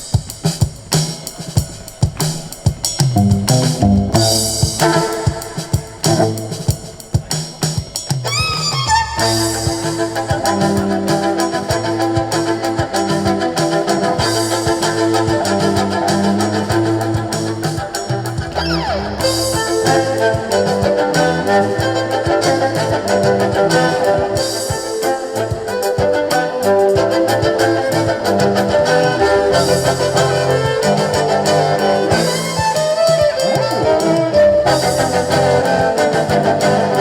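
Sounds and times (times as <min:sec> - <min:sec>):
live band playing: 0:00.0 - 0:37.0
violin: 0:00.0 - 0:37.0
bass line: 0:02.2 - 0:05.2, 0:06.0 - 0:06.8, 0:08.4 - 0:24.6, 0:26.9 - 0:32.8, 0:33.6 - 0:37.0.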